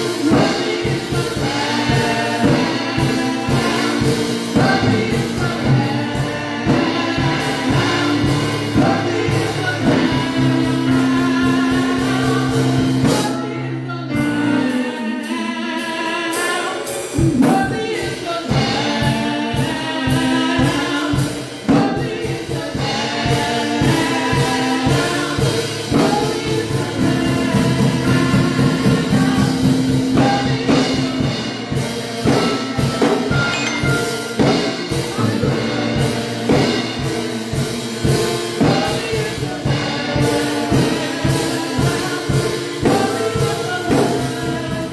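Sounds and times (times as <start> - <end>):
band playing: 0.0 - 44.9
group singing worship music: 0.0 - 44.9.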